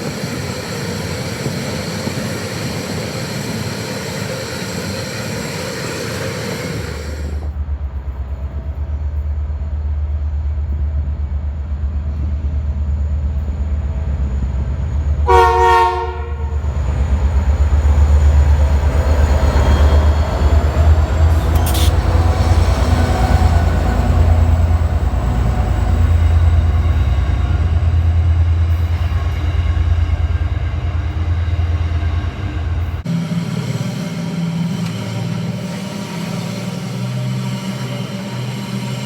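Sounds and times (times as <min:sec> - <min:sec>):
diesel locomotive engine throbbing: 0:00.0 - 0:39.0
two-tone train horn blast: 0:15.2 - 0:16.7.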